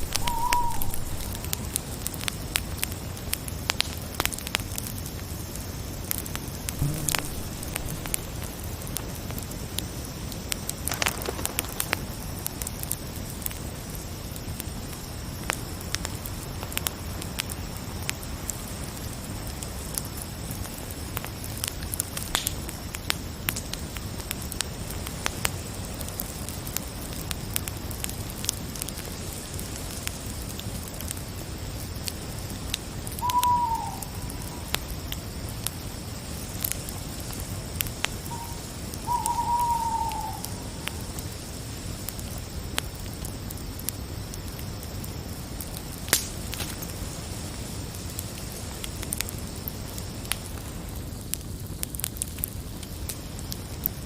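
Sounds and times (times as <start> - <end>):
night bird call: 0.0 - 1.6, 6.8 - 8.4, 33.2 - 34.8, 38.2 - 41.0
campfire crackling and popping: 0.0 - 54.0
crickets chirping: 0.0 - 54.0.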